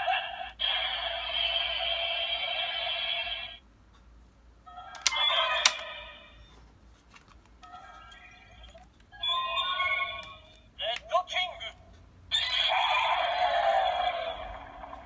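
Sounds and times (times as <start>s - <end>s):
sharp clicks: 5.0s - 5.8s.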